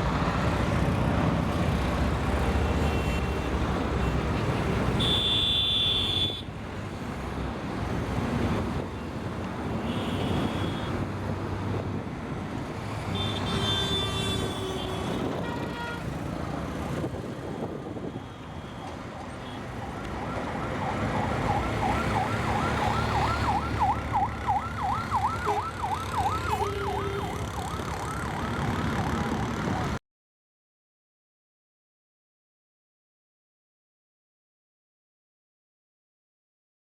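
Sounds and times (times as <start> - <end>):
siren wailing: 19.2 - 30.0.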